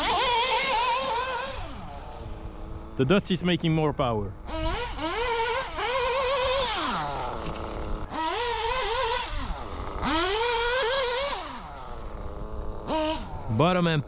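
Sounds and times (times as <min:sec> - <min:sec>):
small rc car engine revving: 0:00.0 - 0:03.4, 0:04.3 - 0:14.0.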